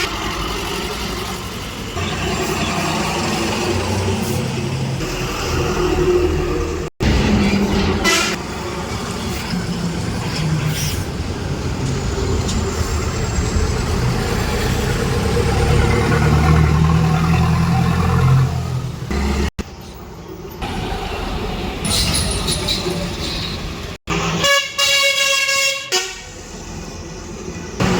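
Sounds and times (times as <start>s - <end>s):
truck engine drone: 0.0s - 24.7s
road noise: 0.0s - 27.9s.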